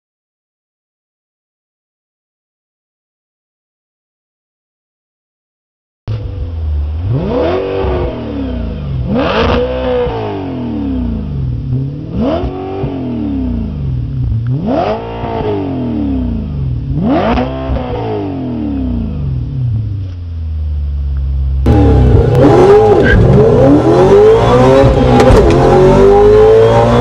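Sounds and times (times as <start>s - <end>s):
car engine revving: 6.1s - 27.0s.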